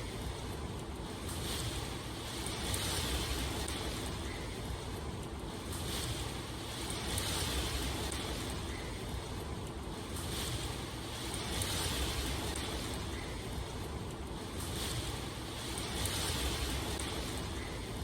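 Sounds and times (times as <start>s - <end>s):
rain hiss: 0.0s - 18.0s.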